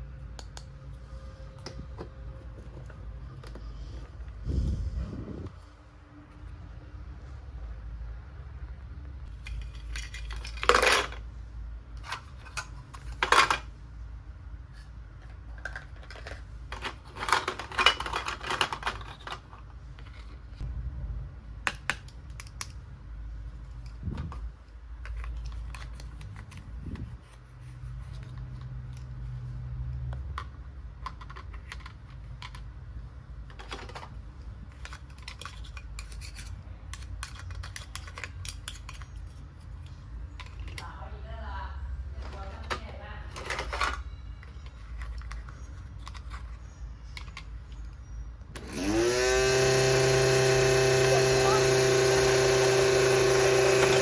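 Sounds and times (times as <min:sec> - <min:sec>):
plastic toys clattering: 0:09.3 - 0:11.3, 0:11.9 - 0:13.8, 0:14.7 - 0:20.6, 0:23.7 - 0:27.1, 0:30.3 - 0:32.8, 0:33.4 - 0:40.9, 0:42.2 - 0:48.1
plastic toy pieces clicking: 0:34.8 - 0:39.4.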